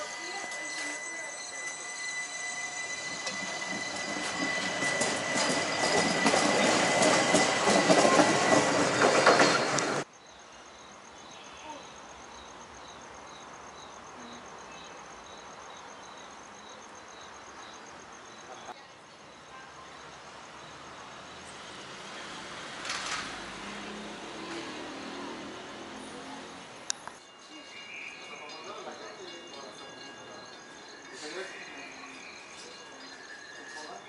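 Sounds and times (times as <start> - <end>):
train high whine: 0.0 - 10.1
wheels clacking over rails: 0.0 - 10.1
insects chirping: 0.0 - 34.0.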